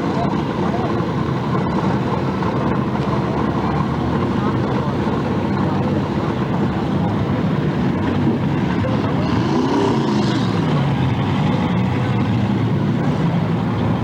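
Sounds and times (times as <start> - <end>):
car engines running together: 0.0 - 14.0
engine revving: 7.6 - 14.0.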